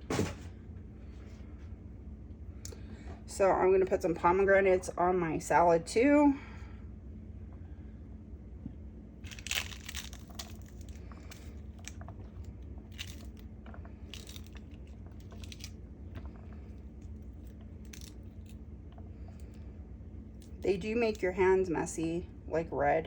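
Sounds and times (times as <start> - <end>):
pomegranate crackling and crunching: 9.2 - 21.7.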